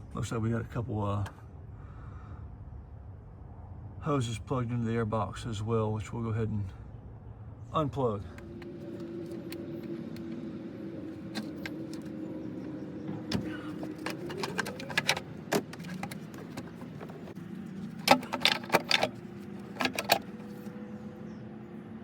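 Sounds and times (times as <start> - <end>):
plastic hose fittings clicking: 13.3 - 20.6.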